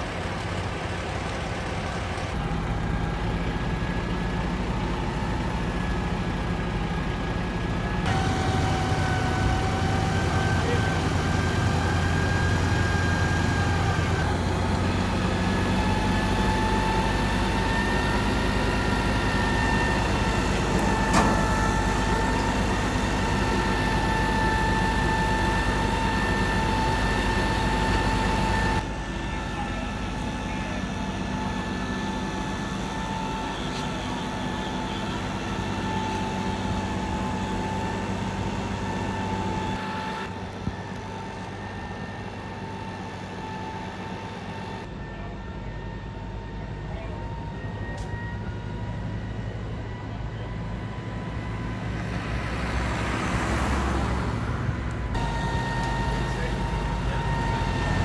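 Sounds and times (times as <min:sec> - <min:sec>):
fire engine hum: 0:00.0 - 0:58.0
high whine: 0:54.9 - 0:58.0.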